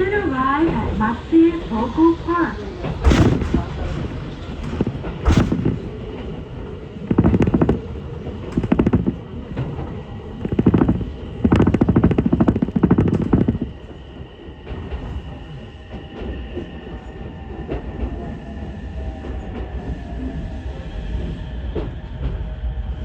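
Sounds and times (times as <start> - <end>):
train low rumble: 0.0 - 23.0
train wheels rattling clatter: 2.5 - 18.4.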